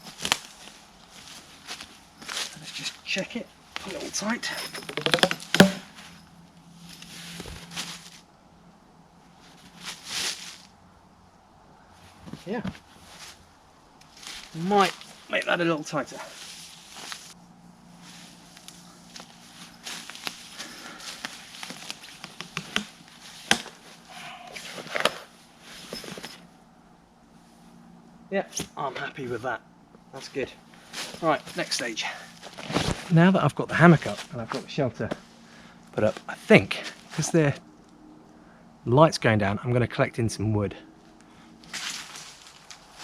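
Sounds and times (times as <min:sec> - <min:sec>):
hammock rustling and swishing: 0:00.0 - 0:08.3, 0:09.3 - 0:10.8, 0:11.9 - 0:26.6, 0:30.7 - 0:33.2, 0:41.0 - 0:43.0.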